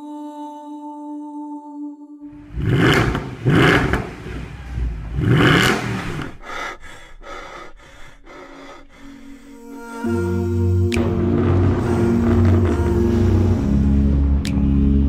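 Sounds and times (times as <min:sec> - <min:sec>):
car engine revving: 0:02.4 - 0:06.4, 0:10.9 - 0:14.6.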